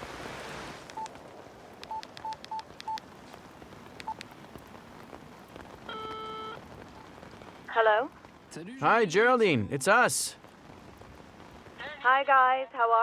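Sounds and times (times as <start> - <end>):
phone keypad beeps: 0.9 - 1.2, 1.8 - 3.0, 4.0 - 4.3, 5.9 - 6.6
phone ringing tone: 1.8 - 3.0, 5.9 - 6.6.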